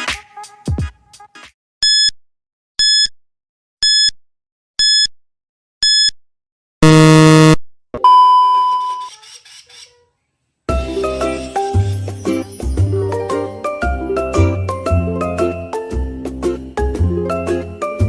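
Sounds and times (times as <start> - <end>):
short electronic beeps: 3.8 - 4.2, 4.8 - 5.1, 5.8 - 6.2, 6.8 - 9.1
harsh buzzer: 6.8 - 7.6.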